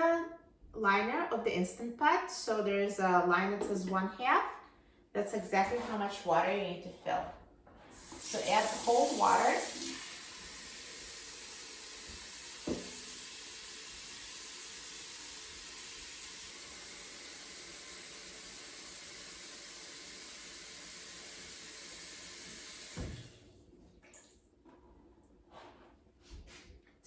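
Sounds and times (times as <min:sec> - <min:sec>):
water pouring into metal pot: 0:08.0 - 0:23.4
thump: 0:12.6 - 0:13.0, 0:23.0 - 0:23.3.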